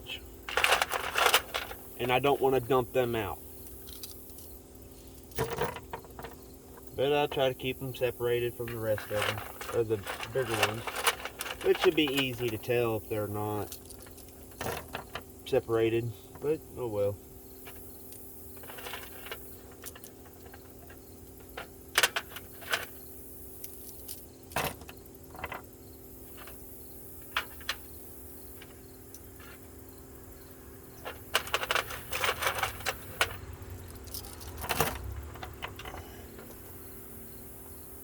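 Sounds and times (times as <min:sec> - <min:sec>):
steel sockets clinking: 0:08.5 - 0:12.7.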